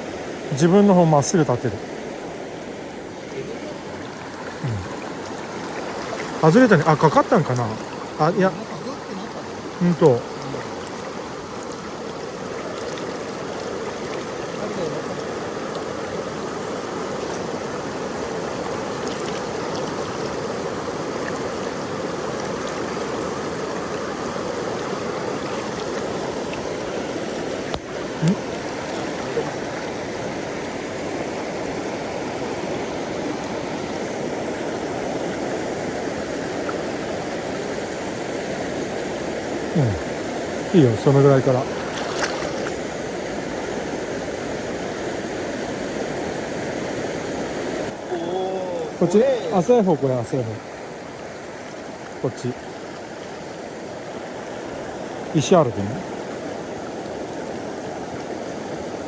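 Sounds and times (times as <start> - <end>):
river water rushing over rocks: 0.0 - 59.0.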